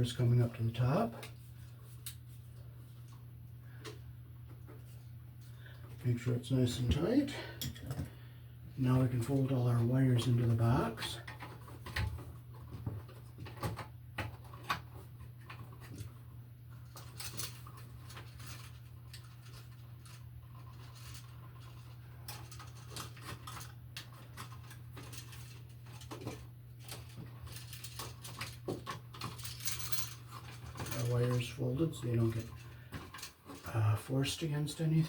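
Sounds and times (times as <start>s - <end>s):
steady low hum: 0.0s - 35.0s
stiff wire clicking and scraping: 10.6s - 33.8s.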